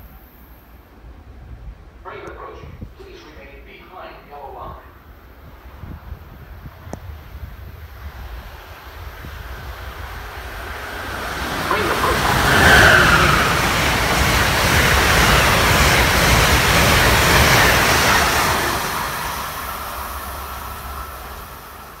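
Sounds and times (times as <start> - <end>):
train passing at speed: 4.8 - 22.0.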